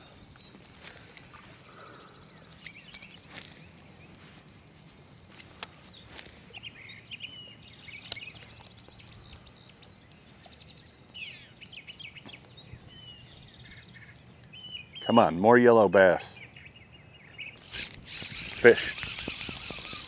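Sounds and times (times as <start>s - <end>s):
faint birds chirping: 0.0s - 20.0s
sharp clicks: 17.6s - 20.0s.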